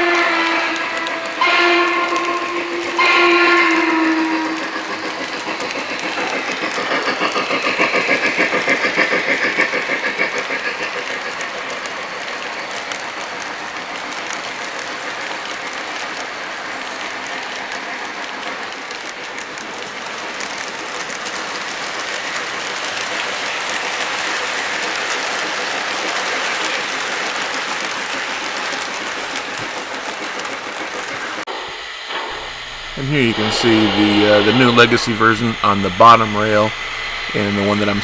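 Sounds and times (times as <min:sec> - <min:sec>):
model trains rolling on track: 0:00.0 - 0:38.0.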